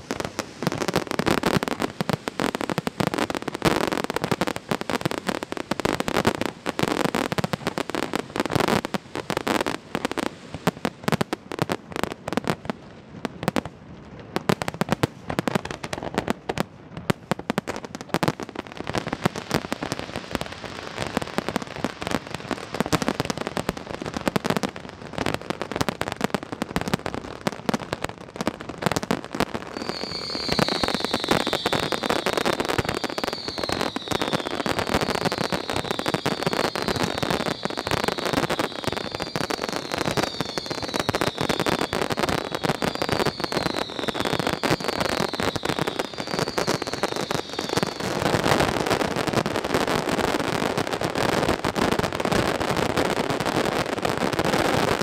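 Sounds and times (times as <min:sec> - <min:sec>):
firework bangs and crackling: 0:00.0 - 0:55.0.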